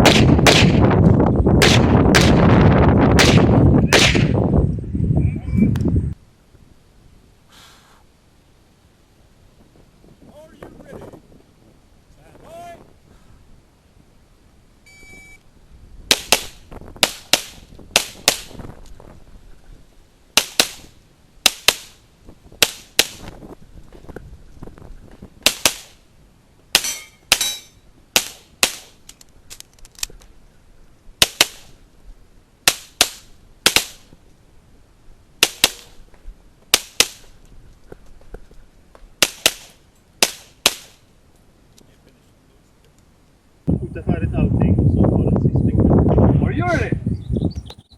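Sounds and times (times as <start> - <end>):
shot timer beep: 14.9 - 15.4.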